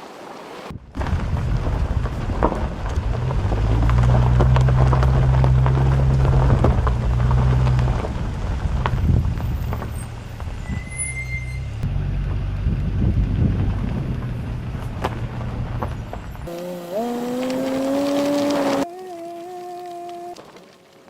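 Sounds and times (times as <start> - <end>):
vehicle engine humming: 0.7 - 21.0
brief high squeak: 10.6 - 11.8.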